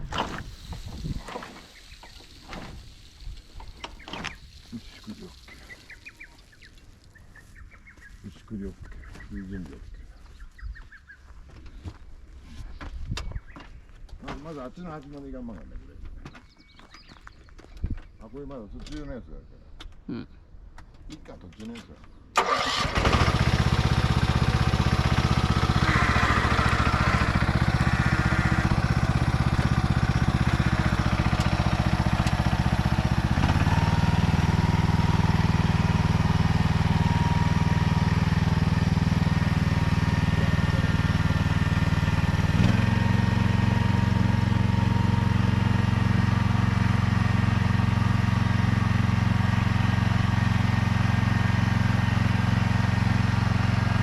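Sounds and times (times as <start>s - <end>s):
small engine running: 22.4s - 54.0s.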